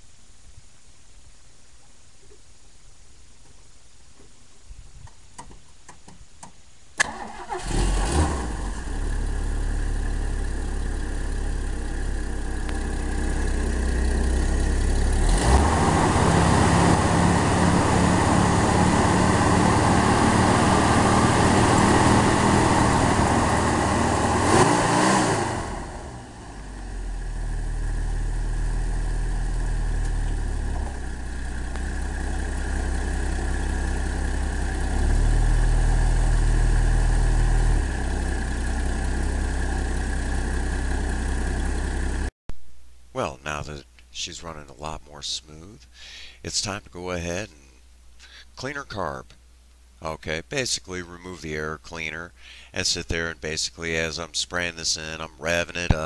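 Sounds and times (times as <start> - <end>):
car engine idling and revving: 7.0 - 42.3.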